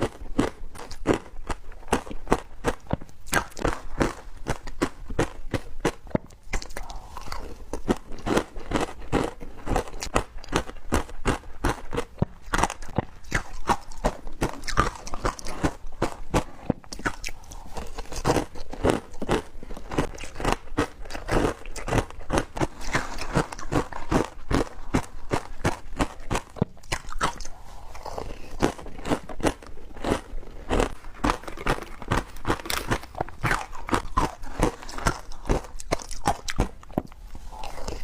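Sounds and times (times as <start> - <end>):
teeth crunching frozen ice: 0.0 - 38.0.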